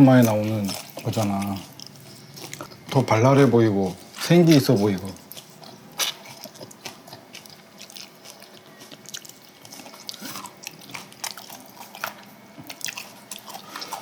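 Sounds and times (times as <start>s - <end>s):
chewing and mouth noises: 0.0s - 14.0s.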